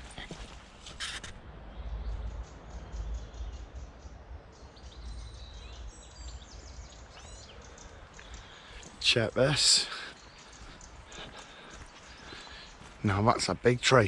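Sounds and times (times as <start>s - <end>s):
rustling noise: 0.0s - 1.4s
small birds chirping: 0.0s - 14.0s.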